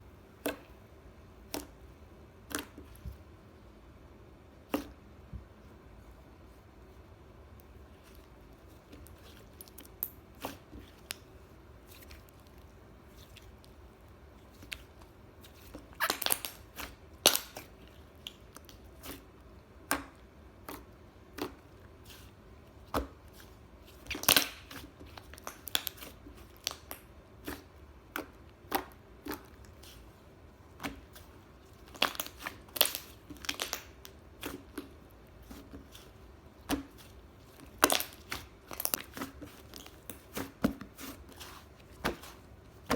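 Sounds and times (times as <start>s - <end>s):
hands squeezing slime: 7.9s - 42.9s
air pockets popping in slime: 15.9s - 17.7s, 31.8s - 36.0s, 36.6s - 41.2s.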